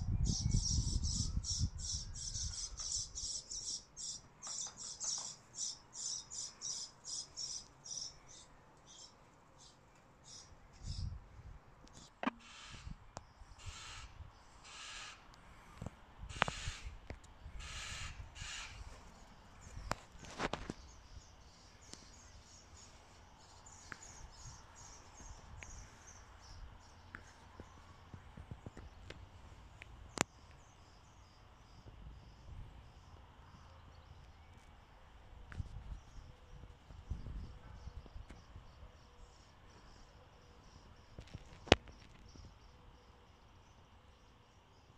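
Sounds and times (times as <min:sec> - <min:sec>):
high-pitched bird chirping: 0:00.0 - 0:09.1
small birds chirping: 0:00.0 - 0:11.2, 0:11.9 - 0:44.9.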